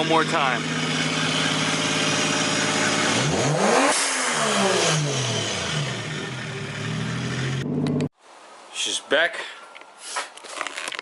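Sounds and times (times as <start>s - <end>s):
car engine idling and revving: 0.0s - 8.1s.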